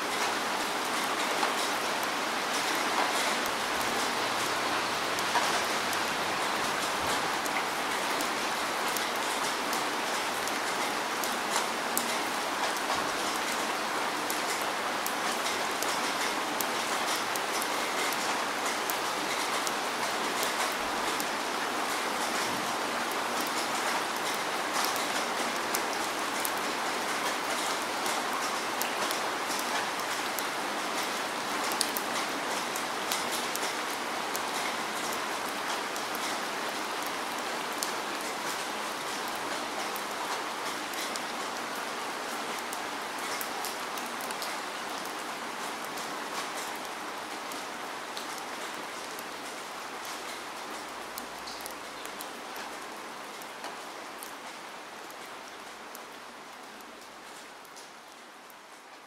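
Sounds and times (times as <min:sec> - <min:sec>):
steady rain hiss: 0:00.0 - 0:59.0
raindrop ticks: 0:06.8 - 0:41.4, 0:45.8 - 0:56.1.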